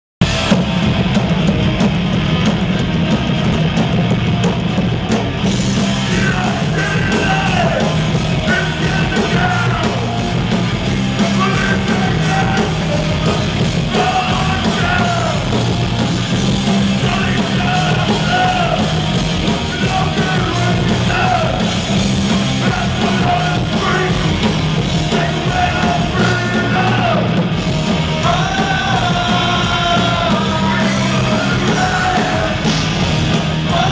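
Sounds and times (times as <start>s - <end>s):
punk rock band playing: 0.2s - 33.9s
shouted vocals: 6.0s - 10.2s, 11.2s - 15.6s, 16.9s - 21.8s, 22.6s - 24.5s, 25.1s - 27.4s, 28.2s - 32.7s.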